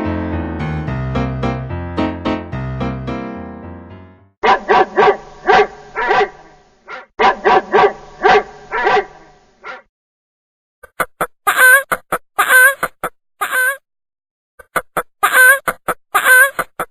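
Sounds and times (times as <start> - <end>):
piano tune: 0.0 - 4.4
dog barking: 4.4 - 9.9.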